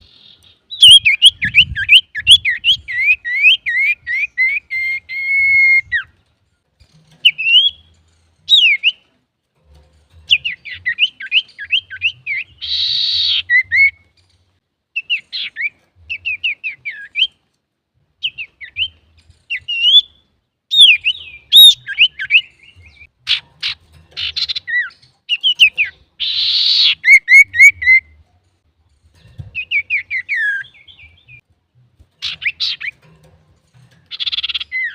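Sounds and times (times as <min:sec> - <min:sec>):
bird singing whistled notes: 0:00.0 - 0:06.2, 0:07.2 - 0:07.9, 0:08.5 - 0:09.0, 0:10.3 - 0:14.1, 0:15.0 - 0:17.4, 0:18.2 - 0:23.1, 0:24.2 - 0:28.2, 0:29.6 - 0:31.4, 0:34.1 - 0:34.9
harsh rasping bird call: 0:11.1 - 0:14.0, 0:26.2 - 0:28.0.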